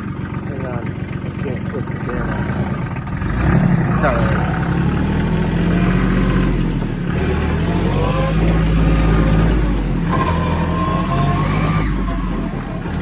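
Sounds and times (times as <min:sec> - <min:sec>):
tractor engine running: 0:00.0 - 0:13.0
higher wavering tones: 0:07.6 - 0:13.0.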